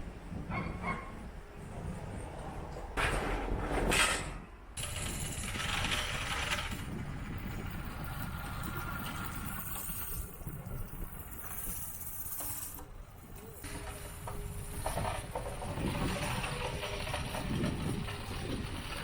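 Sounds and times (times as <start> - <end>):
tractor engine rough rumble: 4.8 - 19.0.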